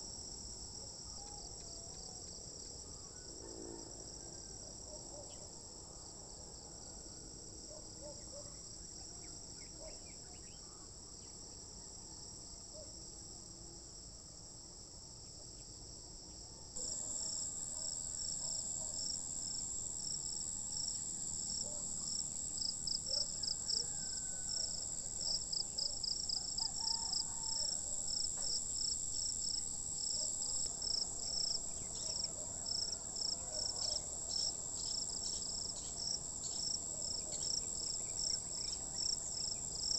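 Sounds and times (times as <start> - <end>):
insects trilling in chorus: 16.8 - 39.9.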